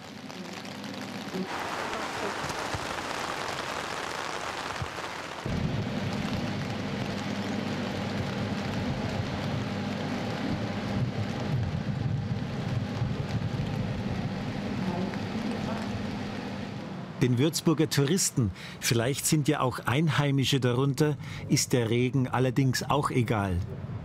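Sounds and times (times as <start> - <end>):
steady rain hiss: 0.0 - 23.6
low ship engine hum: 5.4 - 24.0.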